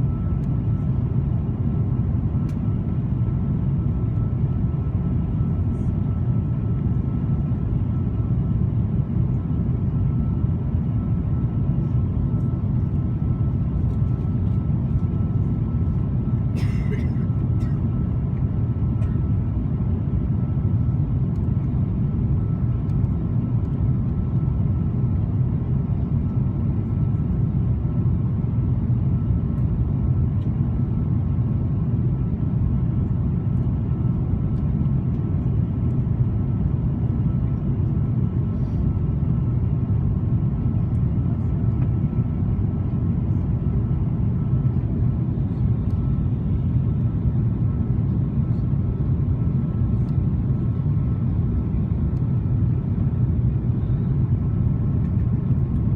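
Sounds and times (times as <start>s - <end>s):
airliner cabin rumble: 0.0s - 55.9s.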